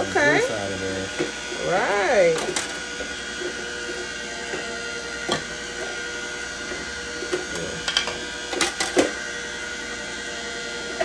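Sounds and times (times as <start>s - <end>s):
juicer motor whining: 0.0s - 11.0s
fruit cracking in juicer: 2.4s - 11.0s.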